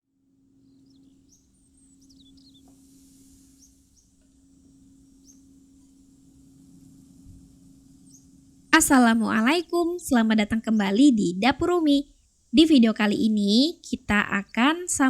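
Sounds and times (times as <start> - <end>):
low hum of room tone: 0.1 - 15.0
small birds chirping: 0.6 - 15.0.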